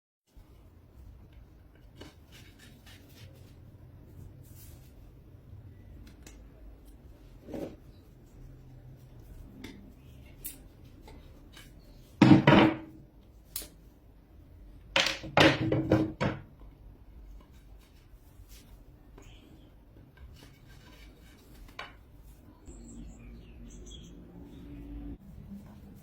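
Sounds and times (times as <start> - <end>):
broom scraping and rustling: 7.2 - 9.6
knock: 12.2 - 12.9, 15.2 - 16.5.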